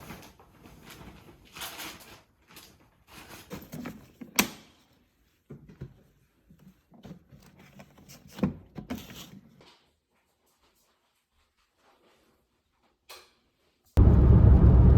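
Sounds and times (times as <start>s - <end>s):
objects rustling and knocking: 0.0s - 4.3s.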